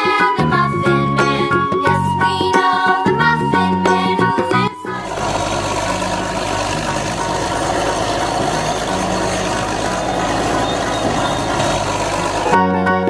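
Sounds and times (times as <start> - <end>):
vehicle engine rumble: 3.1 - 13.0.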